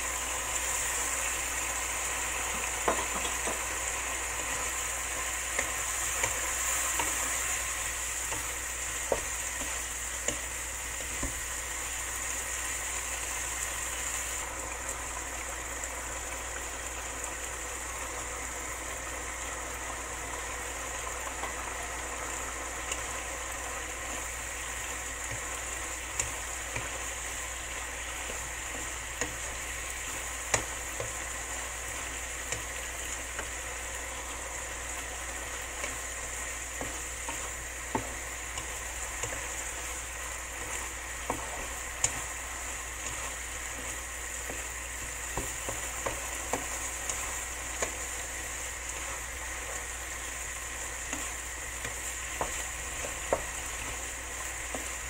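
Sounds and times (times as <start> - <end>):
eggplant sizzling in a frying pan: 0.0 - 55.0
wooden spatula knocking on pan: 2.5 - 3.8, 5.5 - 11.5, 25.2 - 33.6, 35.6 - 48.3, 49.6 - 55.0.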